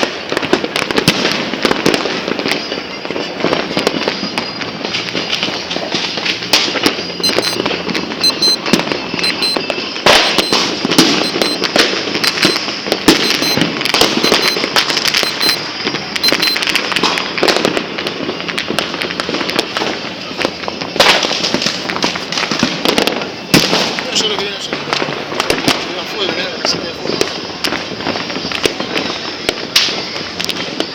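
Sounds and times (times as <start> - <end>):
fireworks crackling and banging: 0.0 - 30.9
faint high repeating beep: 7.2 - 7.6, 8.2 - 13.6, 14.2 - 16.7.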